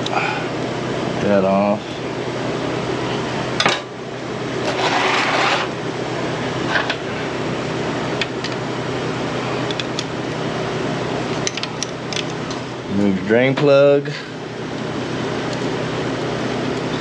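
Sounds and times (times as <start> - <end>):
steady fan hum: 0.0 - 17.0
scraping rustle: 4.6 - 5.7.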